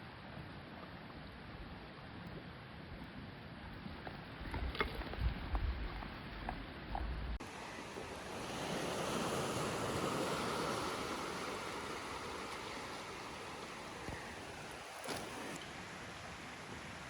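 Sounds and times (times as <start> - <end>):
sea waves washing in: 7.4 - 17.0.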